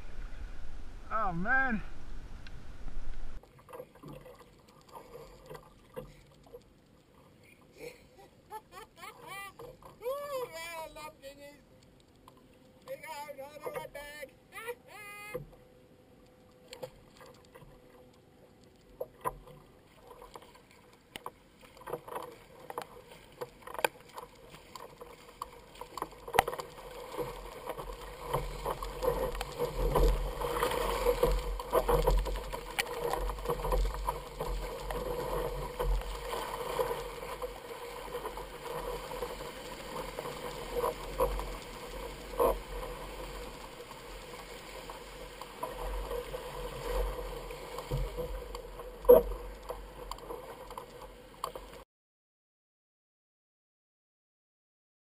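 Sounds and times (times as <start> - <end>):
low rumble: 0.0 - 3.4
water splashing around kayak: 0.0 - 51.8.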